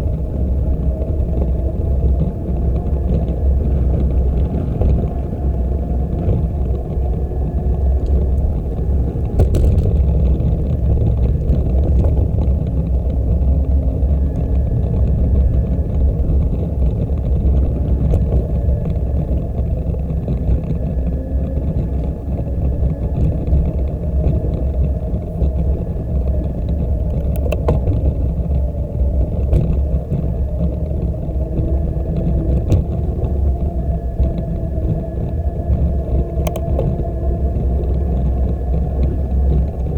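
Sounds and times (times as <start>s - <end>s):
bicycle tyre noise: 0.0s - 39.9s
wind buffeting microphone: 0.0s - 39.9s
light clicks: 36.4s - 37.0s.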